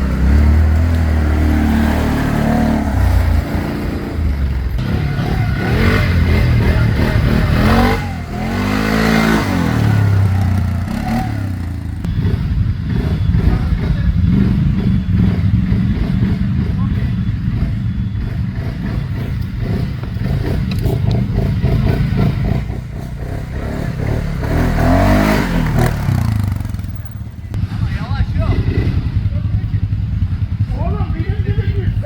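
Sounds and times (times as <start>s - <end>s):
atv engines revving: 0.0s - 32.0s.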